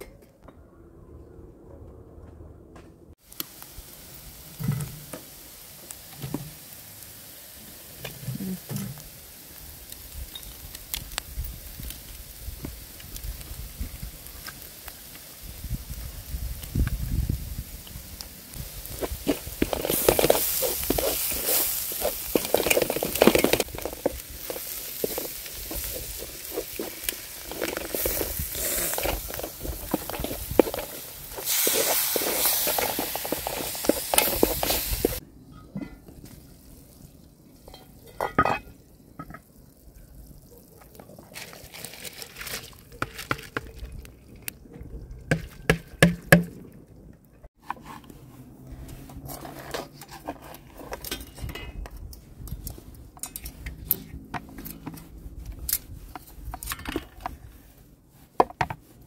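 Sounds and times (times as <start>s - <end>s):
herbs sizzling in a metal pan: 3.2s - 35.2s, 36.5s - 40.3s
wooden spoon scraping and stirring: 18.5s - 36.1s, 47.6s - 59.0s.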